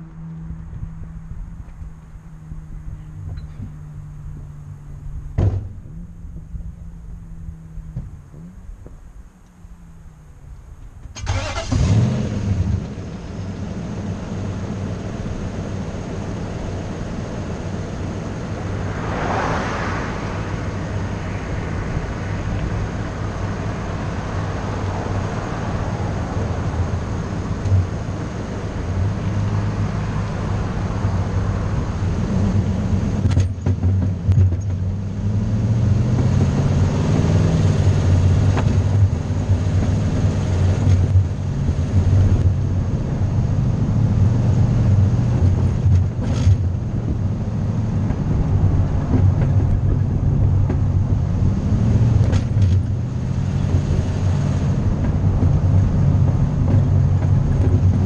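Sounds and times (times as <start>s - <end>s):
vehicle engine idling and revving: 0.0s - 58.0s
vehicle passing: 17.9s - 27.2s, 35.1s - 58.0s.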